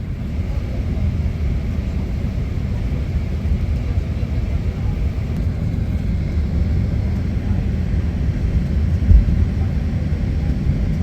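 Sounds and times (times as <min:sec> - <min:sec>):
aircraft rumble: 0:00.0 - 0:11.0
low thump: 0:09.1 - 0:09.7.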